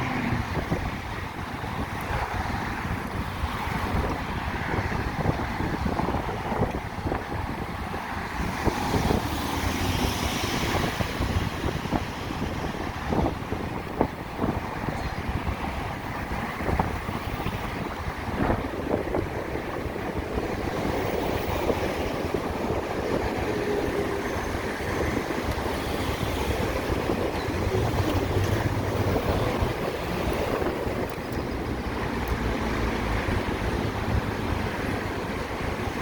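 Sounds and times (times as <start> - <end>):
road and traffic noise: 0.0 - 36.0
wind rushing over microphone: 0.0 - 36.0
engine humming low: 8.4 - 36.0.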